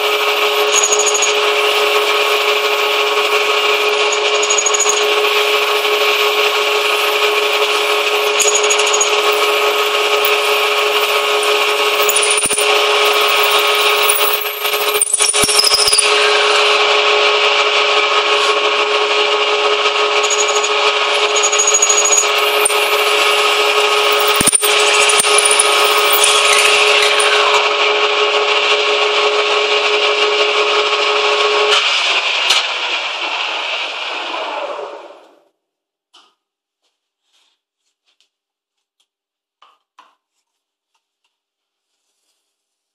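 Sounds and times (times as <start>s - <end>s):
metal lathe running: 0.0s - 31.7s.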